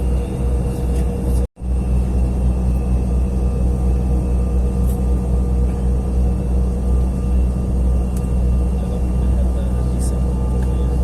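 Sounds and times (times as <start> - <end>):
airliner cabin rumble: 0.7 - 9.0
jet engine whine: 1.3 - 10.6.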